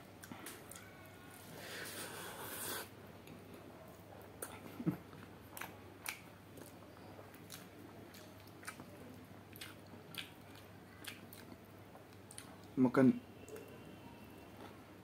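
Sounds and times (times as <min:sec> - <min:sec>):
chewing food: 0:00.1 - 0:01.2, 0:04.2 - 0:12.8.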